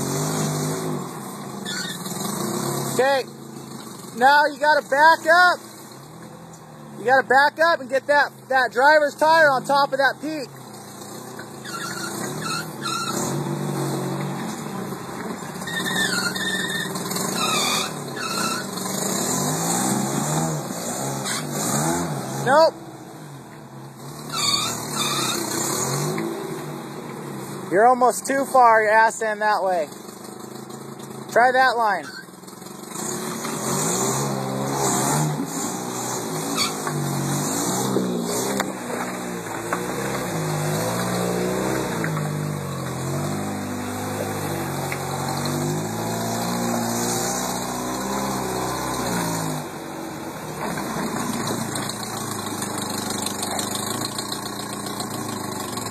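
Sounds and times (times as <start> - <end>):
vehicle engine revving: 0.0 - 55.9
short high squeals: 1.6 - 2.1, 11.5 - 13.4, 15.6 - 18.8, 21.0 - 21.7, 24.2 - 26.0, 31.8 - 32.4, 36.4 - 36.8.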